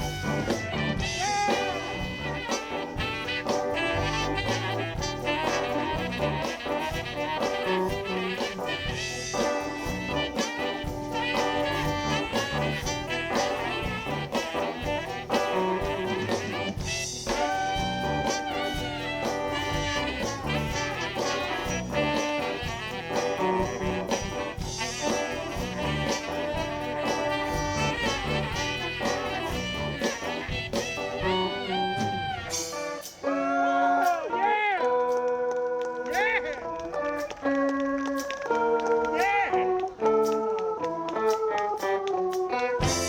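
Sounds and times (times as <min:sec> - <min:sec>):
drum beat: 0:00.0 - 0:33.2, 0:42.8 - 0:43.0
brass lines: 0:00.0 - 0:34.4, 0:35.3 - 0:43.0
bass: 0:00.0 - 0:43.0.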